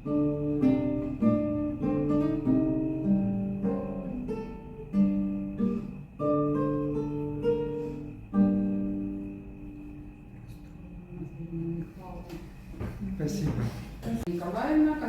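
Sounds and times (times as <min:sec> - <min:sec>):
acoustic guitar playing: 0:00.0 - 0:11.8.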